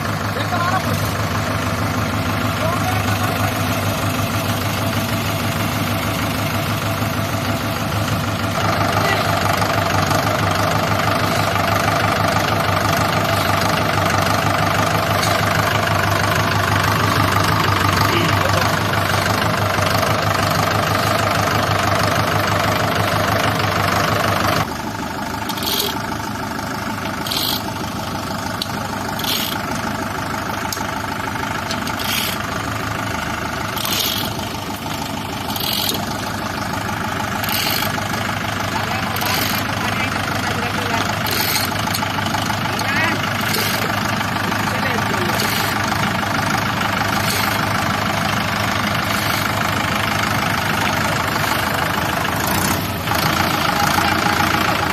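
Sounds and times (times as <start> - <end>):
diesel engine running: 0.0 - 54.9
short high squeaks: 25.5 - 26.0, 27.2 - 27.7, 29.2 - 29.6, 31.9 - 32.4, 33.8 - 34.4, 35.5 - 36.1, 41.2 - 41.8.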